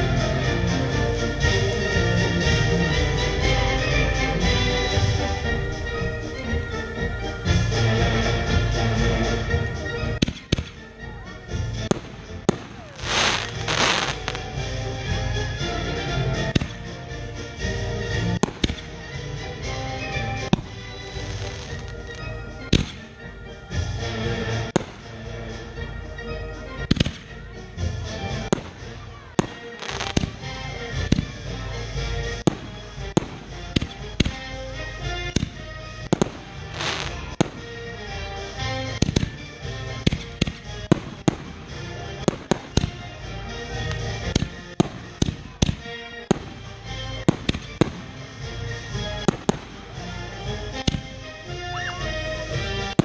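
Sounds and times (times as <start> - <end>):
music playing: 0.0 - 53.0
fireworks crackle: 3.4 - 15.6, 16.2 - 25.6, 26.8 - 53.0
fireworks bangs: 10.2 - 11.1, 11.7 - 14.8, 16.4 - 17.1, 18.1 - 25.5, 26.8 - 27.4, 28.3 - 37.9, 38.5 - 53.0.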